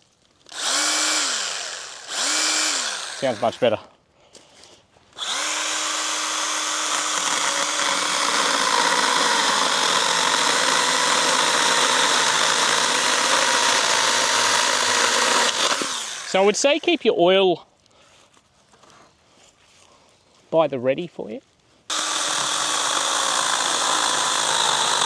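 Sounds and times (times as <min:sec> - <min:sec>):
electric pruner chain running: 0:00.5 - 0:03.7, 0:05.2 - 0:17.0, 0:21.9 - 0:25.0.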